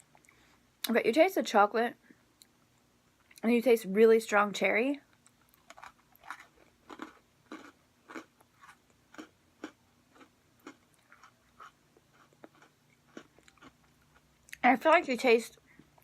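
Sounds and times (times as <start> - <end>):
wet chewing of cookie: 5.2 - 14.6.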